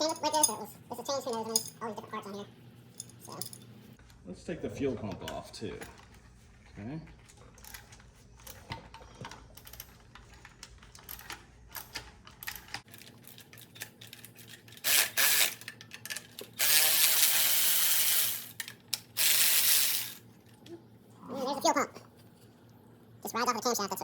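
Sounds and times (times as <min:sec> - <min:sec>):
ratchet wrench clicking: 0:14.8 - 0:15.7, 0:16.6 - 0:20.2.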